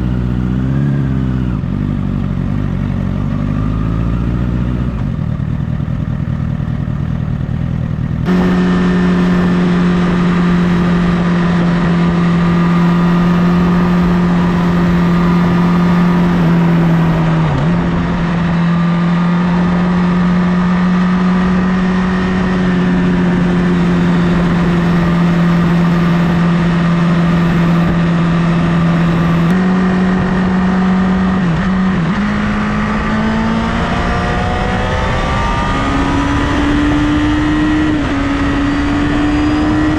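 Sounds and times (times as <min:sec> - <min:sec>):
motorcycle engine at high revs: 0:00.0 - 0:39.9
wind rushing over microphone: 0:08.3 - 0:39.9.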